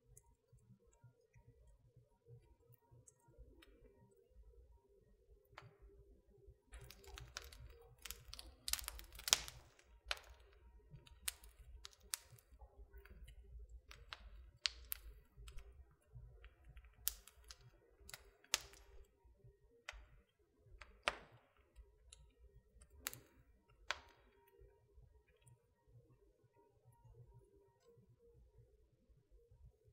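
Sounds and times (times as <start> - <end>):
wood fire crackling: 6.7 - 19.2, 19.8 - 24.6.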